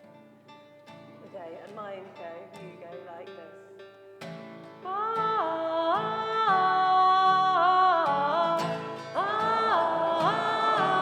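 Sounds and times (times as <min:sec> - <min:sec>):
acoustic guitar strumming: 0:00.0 - 0:11.0
woman singing long notes: 0:04.8 - 0:11.0.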